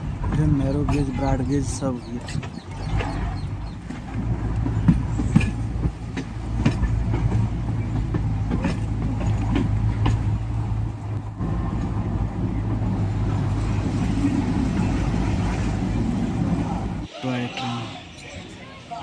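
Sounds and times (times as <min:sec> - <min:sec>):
diesel train engine drone: 0:00.0 - 0:19.0
sharp clicks and knocks: 0:02.2 - 0:11.3.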